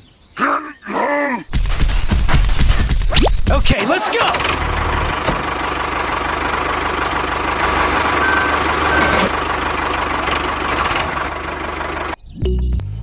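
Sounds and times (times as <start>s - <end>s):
tractor engine knocking idle: 4.1s - 12.2s.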